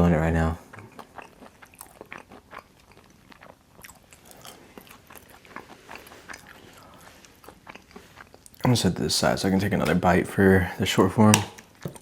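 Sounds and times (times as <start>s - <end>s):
chewing crunchy food: 0.6s - 8.8s.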